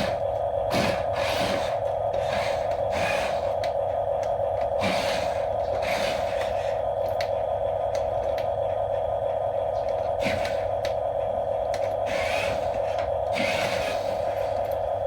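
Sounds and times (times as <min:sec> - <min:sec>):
toy gear motors whining: 0:12.0 - 0:14.6.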